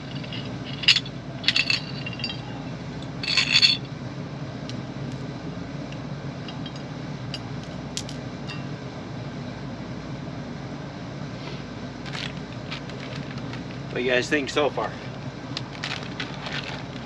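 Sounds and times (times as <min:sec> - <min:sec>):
small metal parts clinking: 0:00.0 - 0:02.6, 0:03.2 - 0:03.8, 0:06.5 - 0:07.4, 0:12.1 - 0:13.8, 0:15.6 - 0:17.0
steady low hum: 0:00.0 - 0:17.0.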